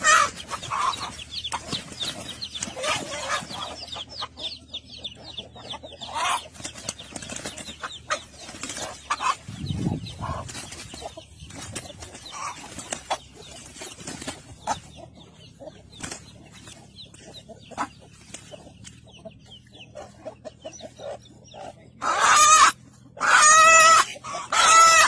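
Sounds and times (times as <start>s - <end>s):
loud drawn-out chicken calls: 0.0s - 15.7s, 19.8s - 25.0s
chickens clucking softly: 0.0s - 25.0s.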